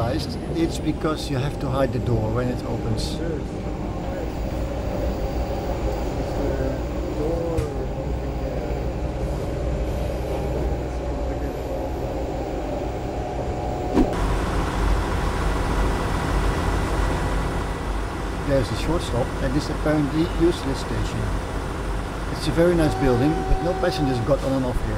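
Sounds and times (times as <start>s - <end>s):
diesel engine drone: 0.0s - 24.9s
wheels rumbling on track: 0.0s - 24.9s.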